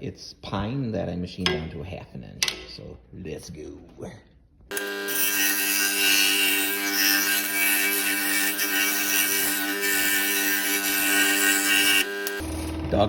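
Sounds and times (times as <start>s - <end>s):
power saw cutting wood: 4.7s - 12.8s.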